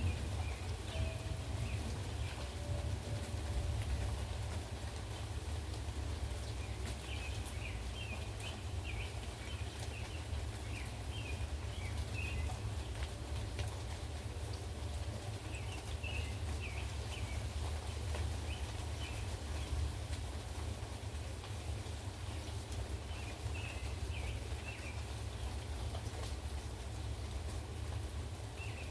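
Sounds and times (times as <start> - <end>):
bird chirping: 0.0 - 4.2, 15.4 - 19.8
drips ticking: 0.0 - 28.0
low rumble of wind: 0.0 - 28.9
rain falling: 0.0 - 28.9.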